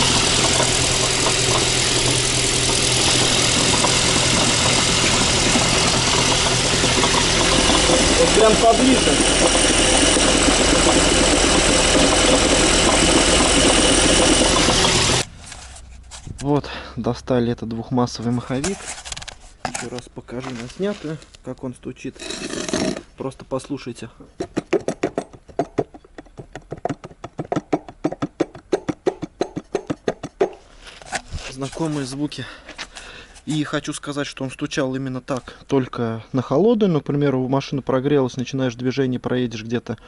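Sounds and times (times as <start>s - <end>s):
flywheel knocking rattle: 0.0s - 15.2s
car engine idling: 0.0s - 15.4s.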